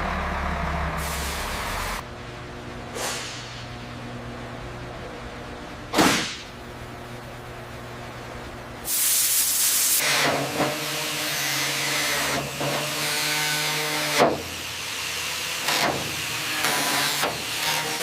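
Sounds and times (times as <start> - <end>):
steady mechanical hum: 0.0 - 18.0
loud bursts of hissing: 1.0 - 2.0, 8.8 - 10.5.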